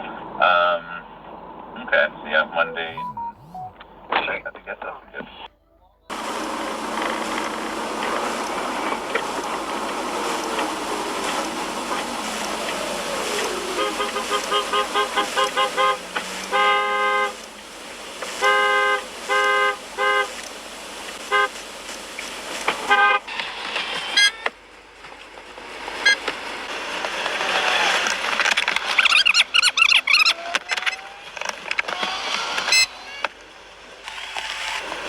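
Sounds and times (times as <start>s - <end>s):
road noise: 0.0s - 35.0s
car horn honking: 2.6s - 4.6s, 5.5s - 20.4s, 21.2s - 21.6s, 22.8s - 23.4s, 24.1s - 24.7s.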